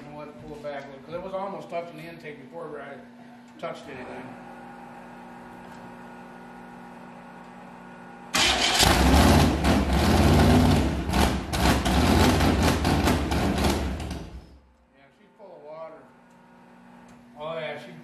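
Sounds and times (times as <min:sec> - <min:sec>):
loud engine running unevenly: 0:08.4 - 0:14.4.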